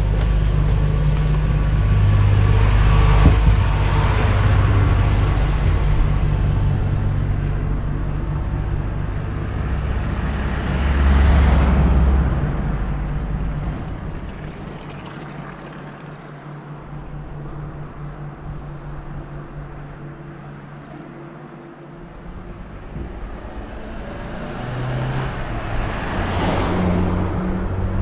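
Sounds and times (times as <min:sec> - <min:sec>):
vehicle passing by: 0:08.4 - 0:20.7, 0:22.1 - 0:28.0.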